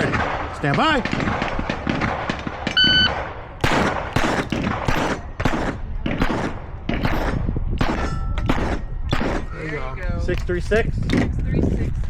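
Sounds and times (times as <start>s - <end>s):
pistol shots: 0.0s - 9.5s
shot timer beep: 2.8s - 3.1s.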